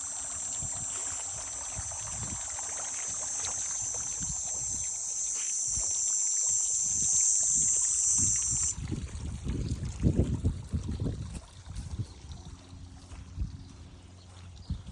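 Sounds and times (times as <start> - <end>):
high-pitched insect buzz: 0.0 - 8.8
water trickling and sloshing: 0.0 - 14.9.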